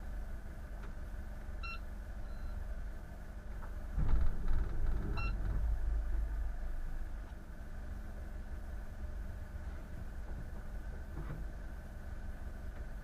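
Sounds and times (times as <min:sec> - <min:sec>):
low engine rumble: 0:00.0 - 0:13.0
short electronic beeps: 0:01.6 - 0:02.6, 0:05.2 - 0:05.4.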